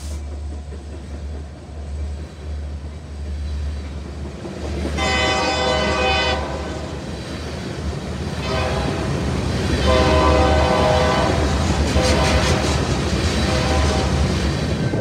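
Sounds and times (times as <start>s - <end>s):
distant locomotive horn blasts: 5.0s - 7.0s, 8.4s - 9.2s, 9.8s - 14.4s.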